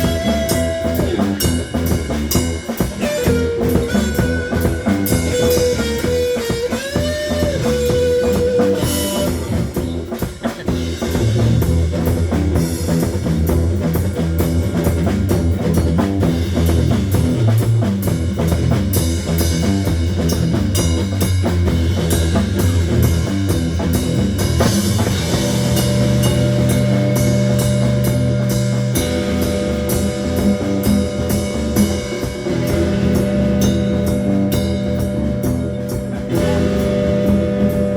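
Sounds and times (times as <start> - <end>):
guitar note bending: 0.0 - 9.7, 24.7 - 37.9
rock band playing: 0.0 - 37.9.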